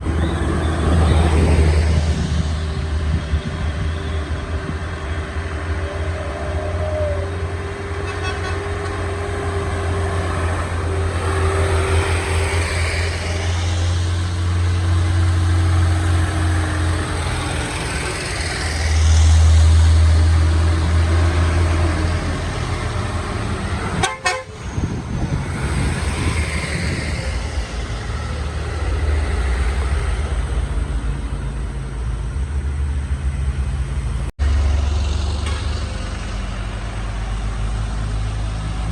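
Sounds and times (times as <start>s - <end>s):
heavy truck engines rumbling: 0.0s - 38.9s
vehicle horn: 8.0s - 9.0s, 24.0s - 24.6s.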